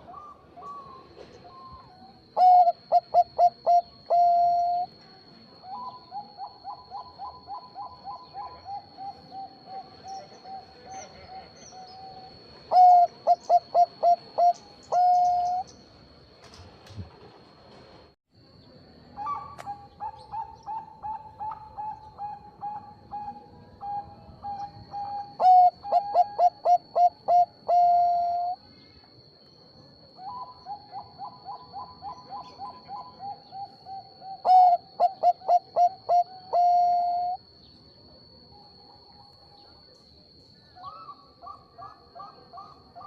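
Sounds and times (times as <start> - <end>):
dove cooing: 2.4 - 4.9, 5.6 - 15.6, 19.2 - 28.6, 30.2 - 37.4.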